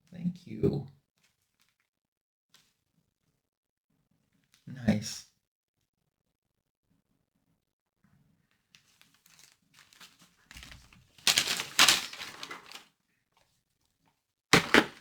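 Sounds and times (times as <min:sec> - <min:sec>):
wrapping paper rustling: 0:08.9 - 0:12.9, 0:14.6 - 0:15.0
wrapping paper tearing: 0:09.3 - 0:12.9, 0:14.6 - 0:15.0.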